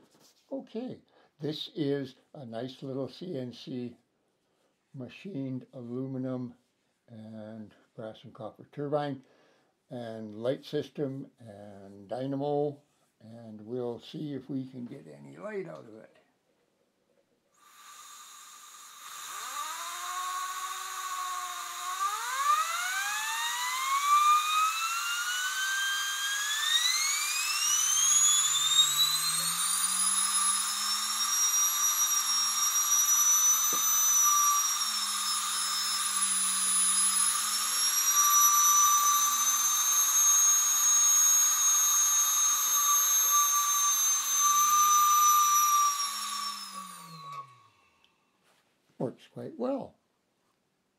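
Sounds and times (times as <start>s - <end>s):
model turbine whine: 17.6s - 47.9s.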